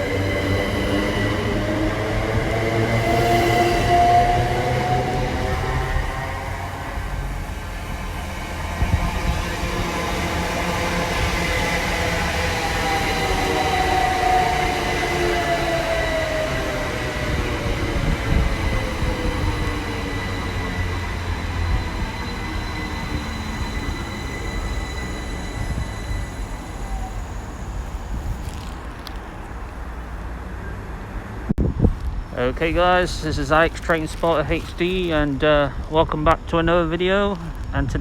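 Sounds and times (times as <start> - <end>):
electric train whining tones: 0.0 - 29.2
electric train rumble: 0.0 - 30.3.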